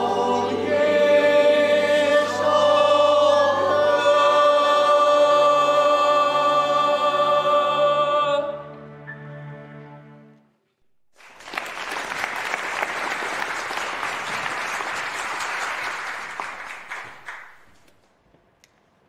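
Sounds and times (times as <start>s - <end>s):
choir singing a held chord: 0.0s - 8.9s
audience applauding: 11.1s - 17.9s.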